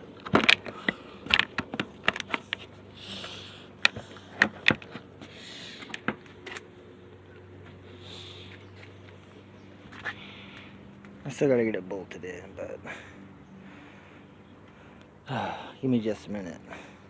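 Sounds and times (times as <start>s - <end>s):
faint steady hum: 0.0s - 17.0s
plastic parts clicking and knocking: 0.2s - 2.7s, 3.8s - 5.0s.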